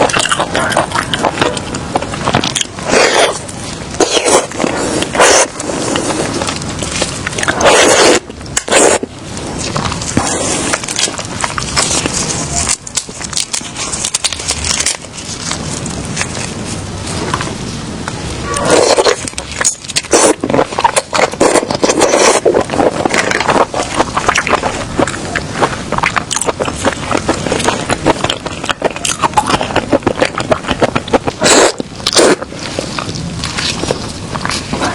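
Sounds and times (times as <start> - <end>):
shells cracking and scraping: 0.0 - 16.6
chewing: 0.0 - 17.5, 18.5 - 34.9.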